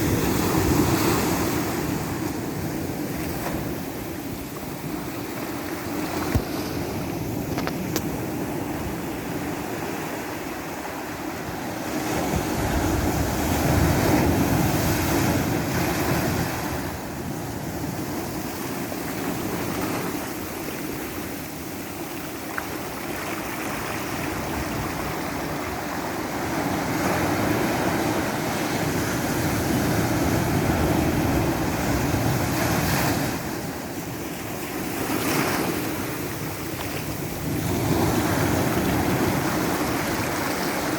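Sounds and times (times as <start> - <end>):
ocean waves breaking: 0.0 - 40.9.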